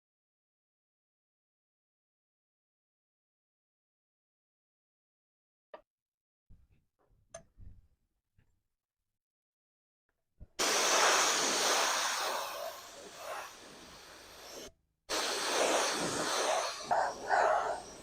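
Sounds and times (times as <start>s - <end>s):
pressurised air hissing: 10.6s - 18.0s.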